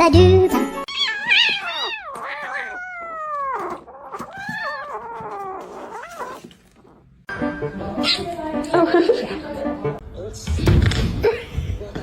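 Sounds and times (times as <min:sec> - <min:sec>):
cat yowling: 0:00.9 - 0:07.0.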